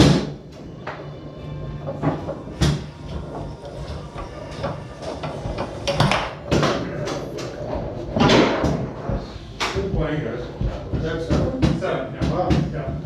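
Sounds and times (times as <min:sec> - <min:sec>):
foosball rods clacking: 0:01.7 - 0:09.8
foosball ball knocking: 0:01.8 - 0:09.9.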